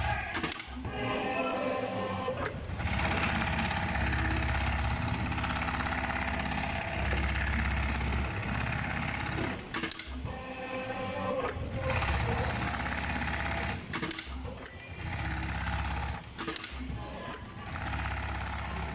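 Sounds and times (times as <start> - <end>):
sewing machine stitching: 2.8 - 10.0, 11.8 - 14.4, 17.4 - 18.9.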